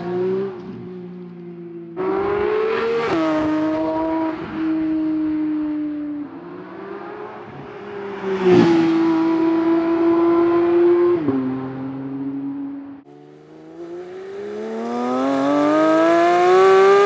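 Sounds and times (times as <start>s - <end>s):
sports car driving past: 2.1s - 12.0s.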